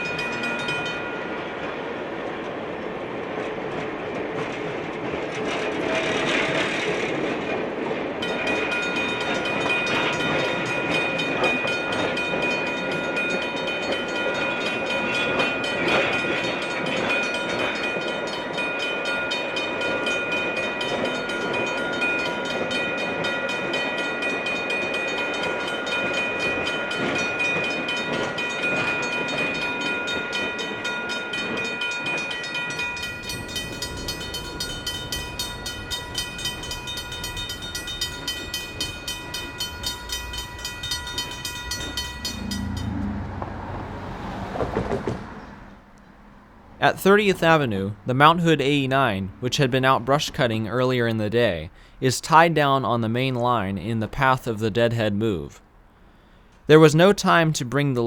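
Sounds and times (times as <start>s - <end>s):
train rumbling on rails: 0.0s - 48.6s
high ringing tones: 29.0s - 44.2s.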